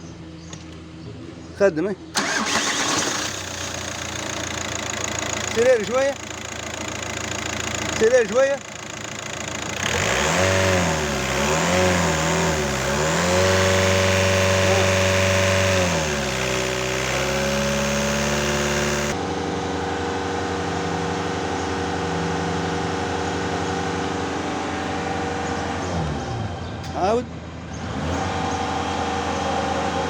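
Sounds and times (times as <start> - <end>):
diesel engine revving and idling: 2.1 - 30.0.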